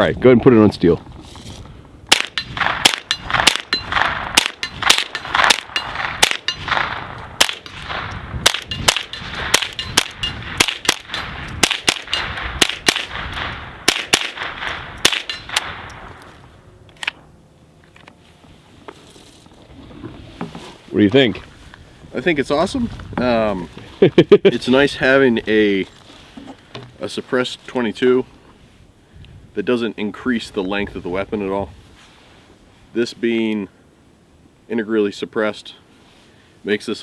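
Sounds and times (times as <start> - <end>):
suppressed rifle shots: 2.1 - 16.3.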